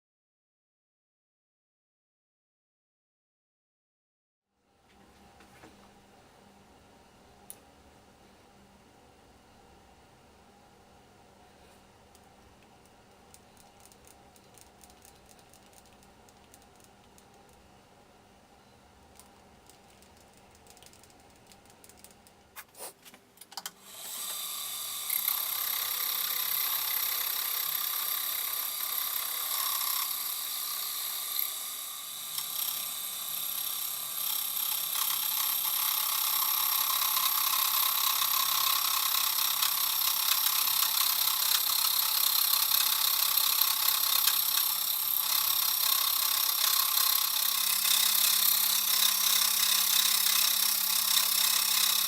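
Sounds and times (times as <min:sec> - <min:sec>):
machine tool cutting metal: 0:23.8 - 0:52.0.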